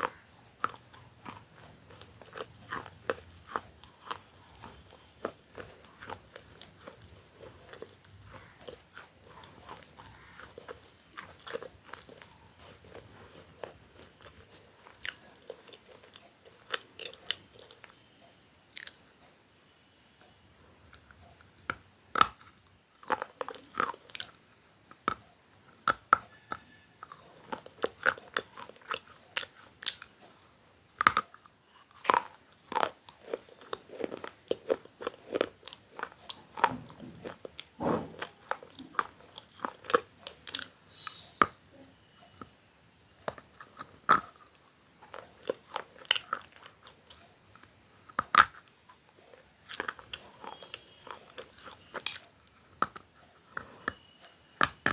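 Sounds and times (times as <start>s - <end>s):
person chewing crunchy food: 0.0s - 19.3s, 20.5s - 54.9s.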